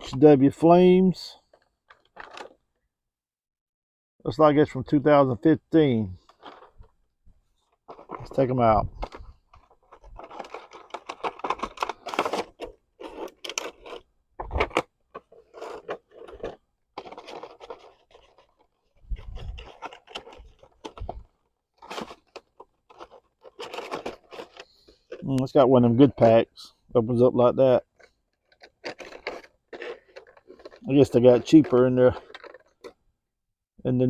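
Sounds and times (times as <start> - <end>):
packaging scratching and scraping: 1.5 - 2.6, 6.2 - 6.9, 7.9 - 25.3, 27.9 - 33.0.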